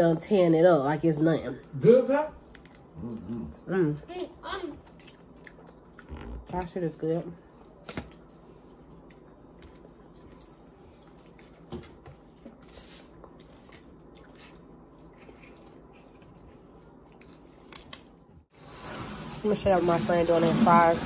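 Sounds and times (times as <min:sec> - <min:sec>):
person chewing and biting: 0:09.0 - 0:18.2.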